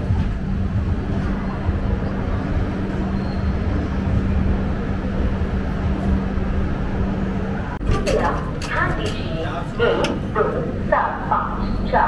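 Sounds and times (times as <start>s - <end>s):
passenger train rumbling: 0.0s - 12.0s.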